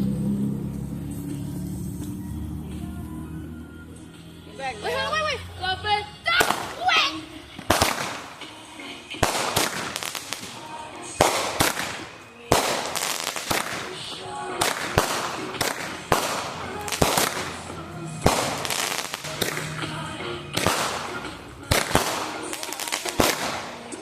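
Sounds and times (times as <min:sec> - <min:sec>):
music playing: 0:00.0 - 0:24.0
fireworks bangs and pops: 0:06.4 - 0:24.0.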